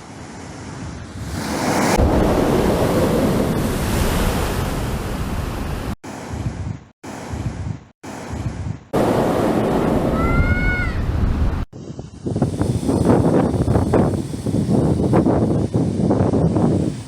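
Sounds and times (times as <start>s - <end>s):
wind buffeting microphone: 0.6s - 17.0s
waves breaking against rocks: 1.2s - 6.0s.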